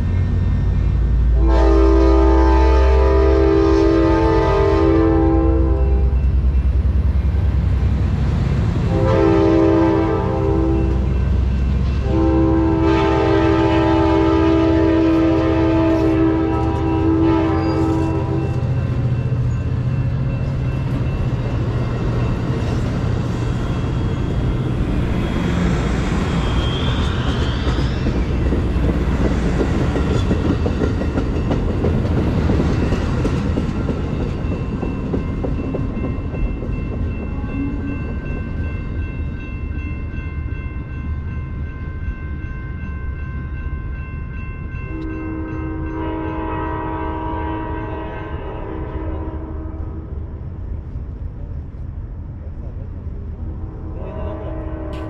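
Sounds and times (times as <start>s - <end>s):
train horn chord: 1.2s - 6.3s, 8.8s - 11.3s, 11.9s - 18.9s, 44.8s - 50.2s, 53.6s - 55.0s
train wheels clattering on rails: 15.8s - 39.8s.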